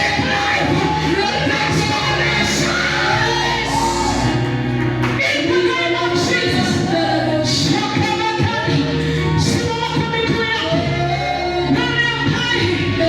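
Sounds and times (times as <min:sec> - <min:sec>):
gospel choir singing: 0:00.0 - 0:08.1.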